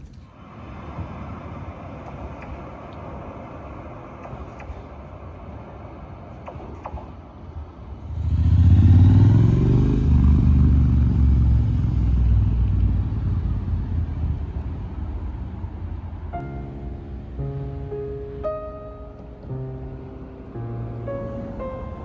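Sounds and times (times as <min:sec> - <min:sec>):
vehicle engine passing by: 0:08.0 - 0:15.7.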